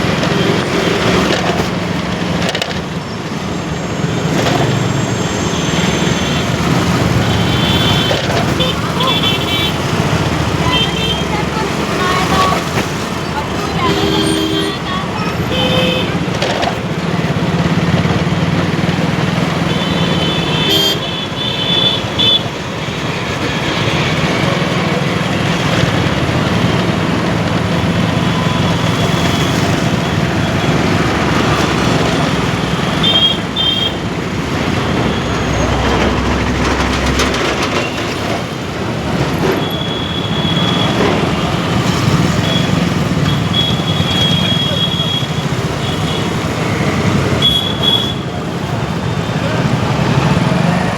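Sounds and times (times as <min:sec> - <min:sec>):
motorbike engine: 0:00.0 - 0:50.9
road noise: 0:00.0 - 0:50.9
vehicle horns honking: 0:05.4 - 0:12.7, 0:13.6 - 0:16.3, 0:19.5 - 0:24.3, 0:31.4 - 0:38.4, 0:39.4 - 0:48.5.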